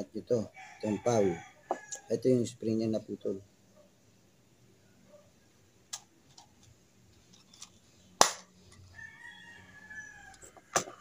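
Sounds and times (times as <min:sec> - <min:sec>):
rooster crowing: 0:00.5 - 0:02.2, 0:08.9 - 0:10.8.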